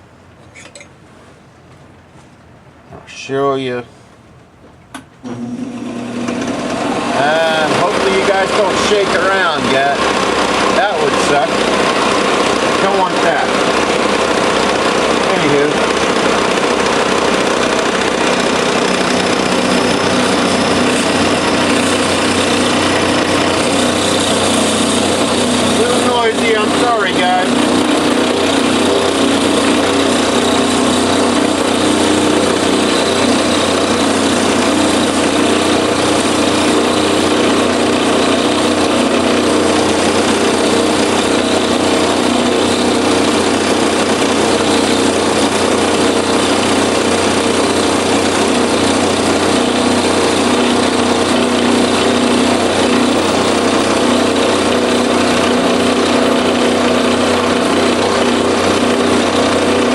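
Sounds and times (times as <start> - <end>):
milling machine motor hum: 5.2 - 59.9
cutter rasping metal: 7.2 - 59.9.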